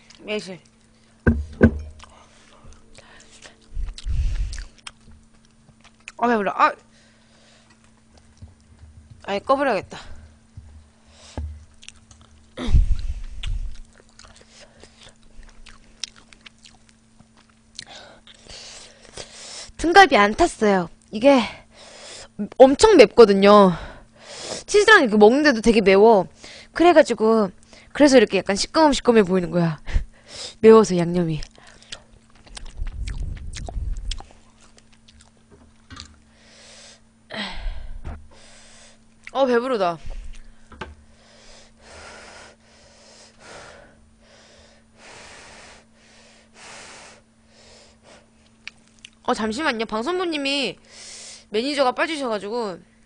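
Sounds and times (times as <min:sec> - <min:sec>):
low thump: 0:01.3 - 0:01.9
person chewing food: 0:01.8 - 0:06.2, 0:07.6 - 0:08.8, 0:11.3 - 0:18.6, 0:31.4 - 0:36.3, 0:48.4 - 0:49.2.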